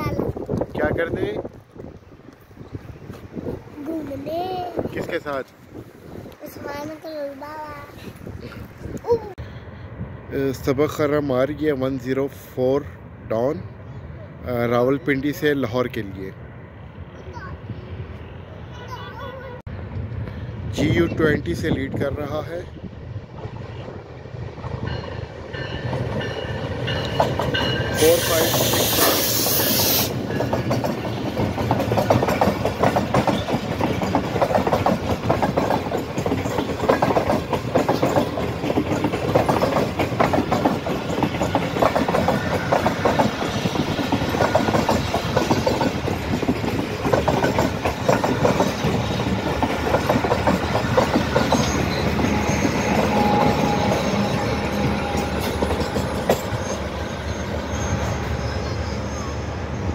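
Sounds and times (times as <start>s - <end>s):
train rumble: 0.0s - 59.9s
train wheels clattering over joints: 24.6s - 58.5s.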